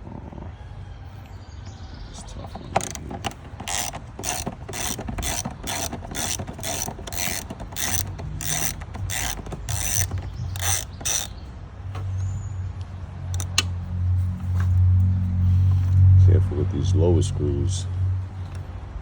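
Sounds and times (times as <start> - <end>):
ratchet clicking: 2.8 - 11.4, 13.3 - 13.7.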